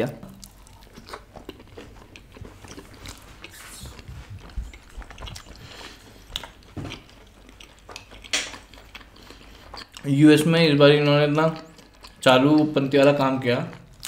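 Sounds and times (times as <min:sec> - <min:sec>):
wet mouth chewing: 0:00.3 - 0:10.1, 0:11.4 - 0:12.8.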